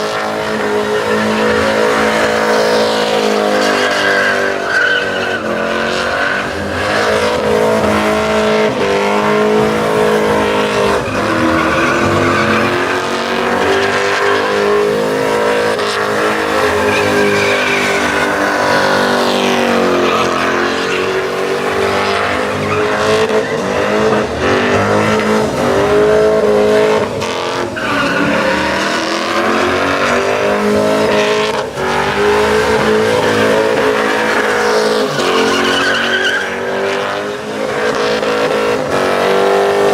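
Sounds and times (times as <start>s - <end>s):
tires squealing: 0.0s - 39.9s
truck engine revving high: 0.0s - 39.9s.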